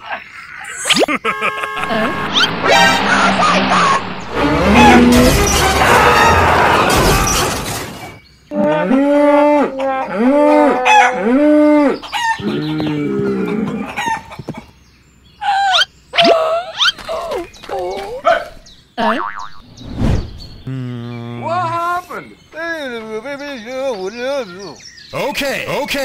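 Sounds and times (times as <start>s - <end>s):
loud crashing rumble: 1.8s - 8.2s.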